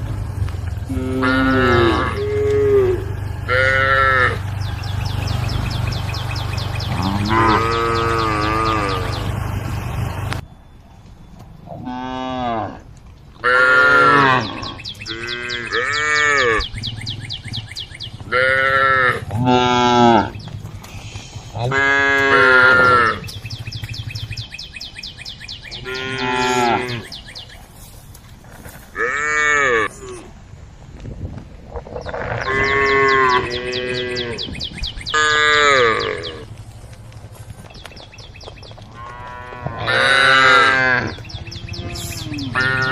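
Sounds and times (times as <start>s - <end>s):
cow mooing: 0.8s - 5.6s, 6.4s - 9.4s, 13.4s - 16.7s, 18.3s - 20.4s, 21.6s - 23.3s, 25.8s - 27.1s, 29.0s - 30.3s, 32.1s - 34.5s, 35.2s - 36.4s, 39.0s - 42.9s.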